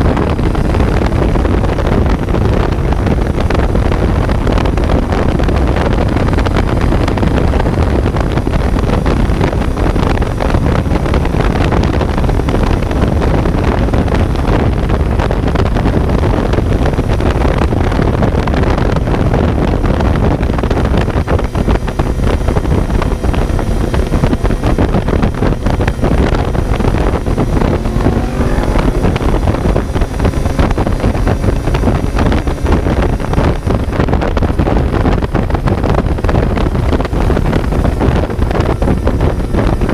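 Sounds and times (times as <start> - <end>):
motorcycle engine running: 0.0 - 39.9
wind noise on microphone: 0.0 - 39.9
faint engine note: 24.2 - 34.2.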